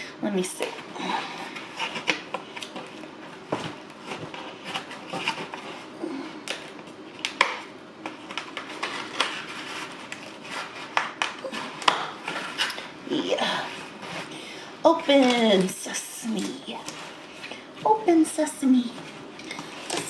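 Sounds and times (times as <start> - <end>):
food containers knocking and rubbing: 1.5 - 6.0.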